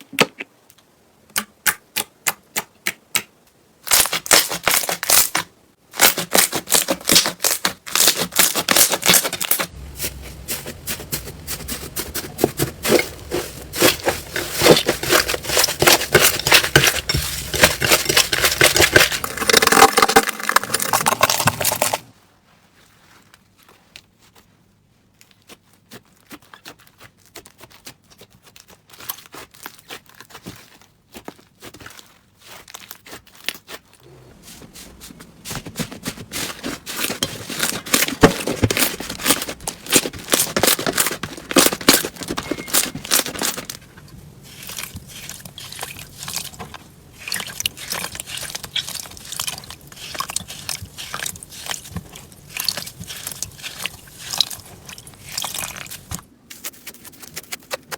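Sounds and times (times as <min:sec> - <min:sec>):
slime crackling and popping: 0:03.8 - 0:10.3, 0:10.9 - 0:22.1, 0:35.5 - 0:57.9.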